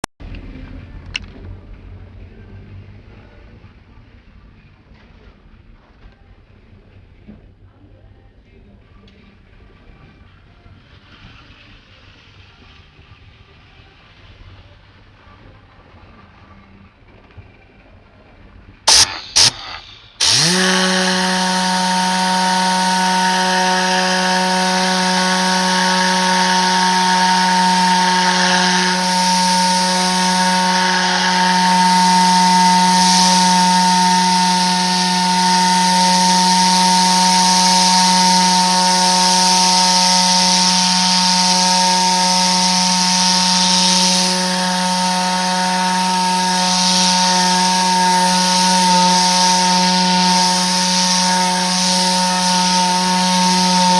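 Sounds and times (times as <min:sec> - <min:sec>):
compressed air gun blasting: 0:18.9 - 0:53.9
whirring hum: 0:18.9 - 0:53.9.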